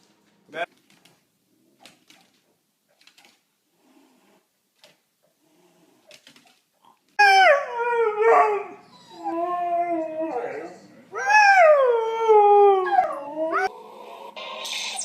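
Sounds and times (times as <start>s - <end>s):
dog howling: 7.2s - 13.8s.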